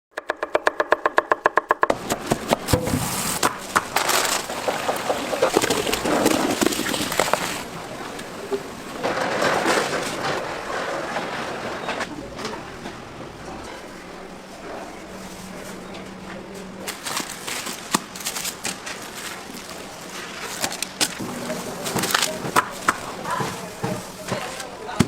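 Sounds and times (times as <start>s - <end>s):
steady cooking hiss: 2.0s - 9.1s, 21.2s - 25.0s
utensils knocking and clattering: 20.6s - 25.0s.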